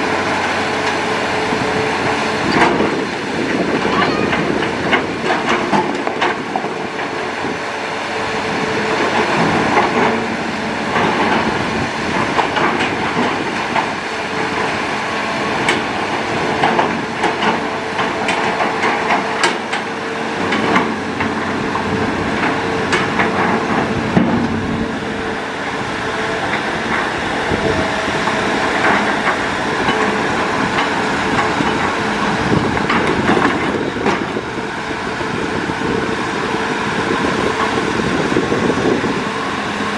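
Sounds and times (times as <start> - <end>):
excavator diesel engine: 0.0 - 39.9
metal clanks and knocks: 16.6 - 24.8.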